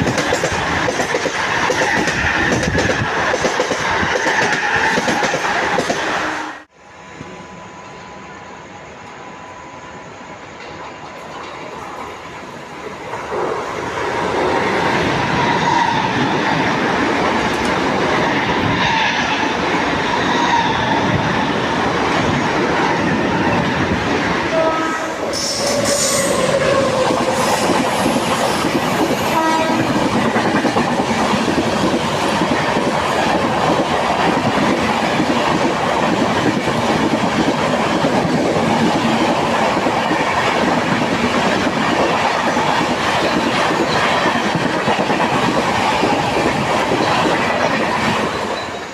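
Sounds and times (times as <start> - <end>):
wheels clacking on rails: 0.0 - 6.2, 10.5 - 48.9
electric train passing at speed: 0.0 - 48.9
train horn blast: 24.5 - 27.6, 29.2 - 30.0.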